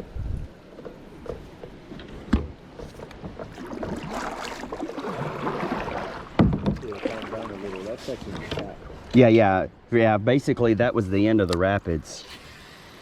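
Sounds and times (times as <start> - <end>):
sharp knocks against boat: 0.7 - 4.2, 6.3 - 7.2
water rushing around kayak hull: 2.5 - 9.6.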